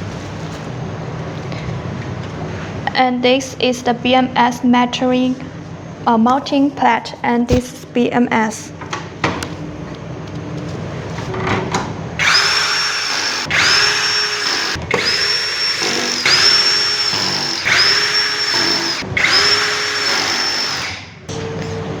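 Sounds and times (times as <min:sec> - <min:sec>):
electric screwdriver whining: 0:12.2 - 0:21.0.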